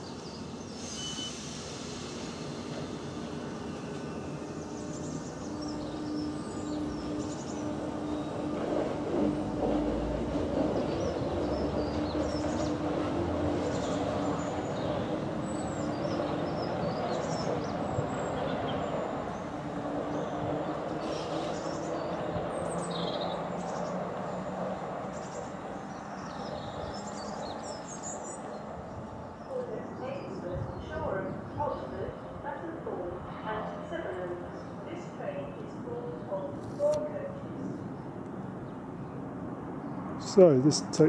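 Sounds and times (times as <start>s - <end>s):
electric train hum and rumble: 0.0s - 41.0s
small birds chirping: 10.7s - 32.4s.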